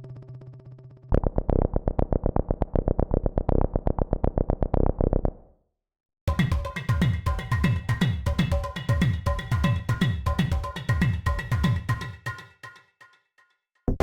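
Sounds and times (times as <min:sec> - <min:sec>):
bass synth pulsing sequence: 0:01.1 - 0:05.5.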